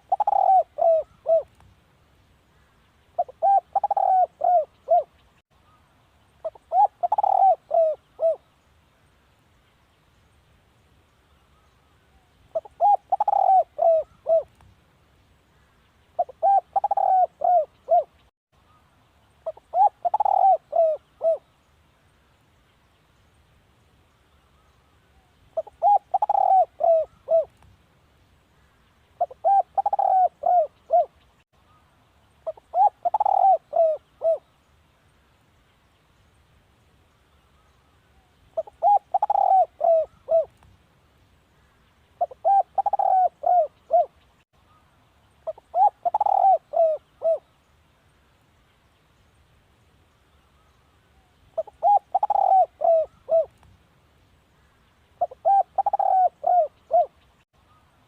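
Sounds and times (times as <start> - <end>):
dove cooing: 0.0 - 1.5, 3.2 - 5.1, 6.4 - 8.4, 12.5 - 14.5, 16.2 - 18.2, 19.4 - 21.5, 25.6 - 27.5, 29.2 - 31.2, 32.4 - 34.5, 38.6 - 40.5, 42.2 - 44.2, 45.4 - 47.5, 51.6 - 53.5, 55.2 - 57.2.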